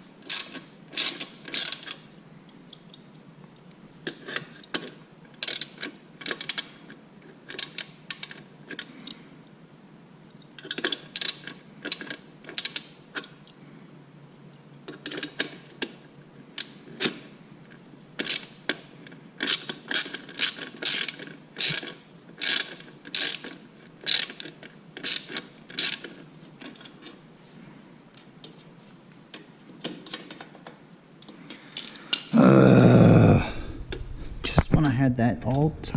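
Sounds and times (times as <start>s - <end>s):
ratchet wrench clicking: 19.4s - 26.0s.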